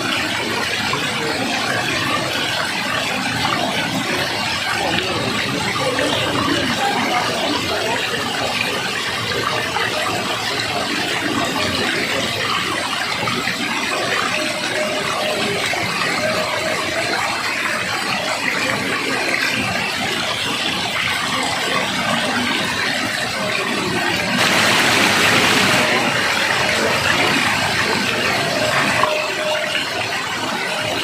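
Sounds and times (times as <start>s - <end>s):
waterfall roar: 22.8s - 31.0s.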